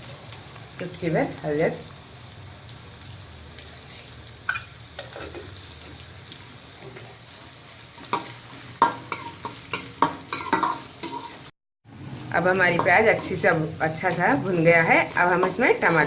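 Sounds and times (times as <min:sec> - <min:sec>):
onions sizzling in hot oil: 0:00.0 - 0:16.0
spoon scraping and knocking pan: 0:08.0 - 0:11.5.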